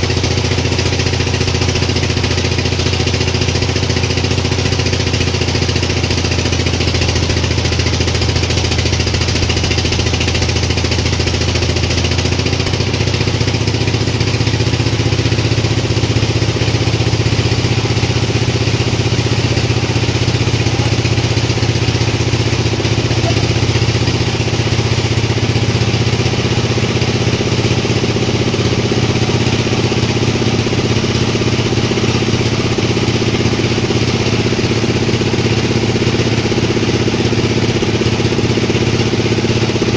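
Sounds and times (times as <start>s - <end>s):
sawmill machinery drone: 0.0s - 39.9s
hiss: 14.2s - 25.4s.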